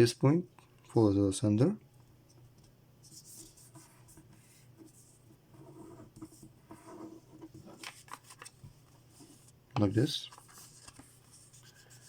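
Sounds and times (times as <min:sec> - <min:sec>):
paper rustling and crinkling: 0:07.6 - 0:12.0.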